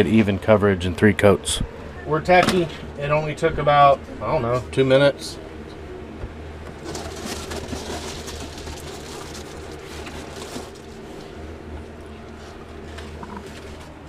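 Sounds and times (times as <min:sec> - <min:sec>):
steady low hum: 0:00.0 - 0:14.0
foil insulation crinkling: 0:06.7 - 0:14.0.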